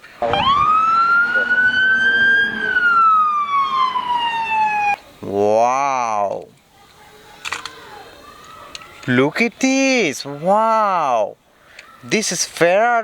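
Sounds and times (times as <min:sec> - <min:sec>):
siren wailing: 0:00.1 - 0:06.1.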